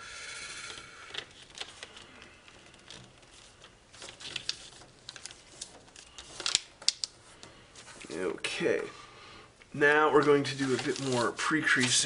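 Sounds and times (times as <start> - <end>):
foil crackling and rustling: 1.1 - 7.0, 10.2 - 12.0.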